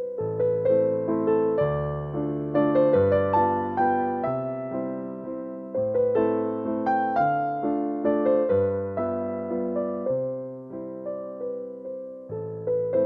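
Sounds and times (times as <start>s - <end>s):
soft electric piano melody: 0.0s - 13.0s.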